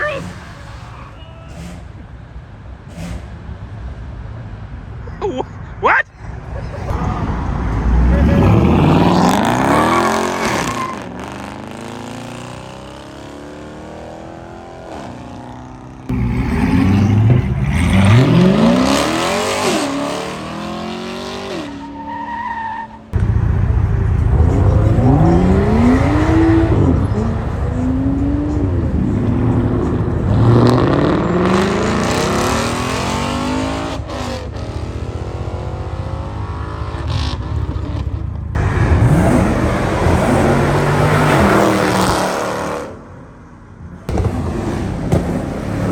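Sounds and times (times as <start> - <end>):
car engines revving: 0.0 - 45.9.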